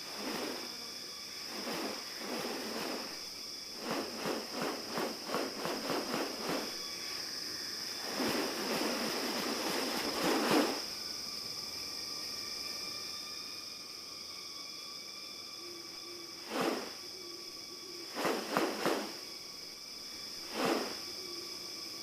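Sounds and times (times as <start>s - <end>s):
rustling whooshing noises: 0.0s - 0.8s, 1.4s - 6.8s, 8.0s - 10.9s, 16.4s - 17.0s, 18.1s - 19.2s, 20.4s - 21.1s
insects buzzing: 0.0s - 22.0s.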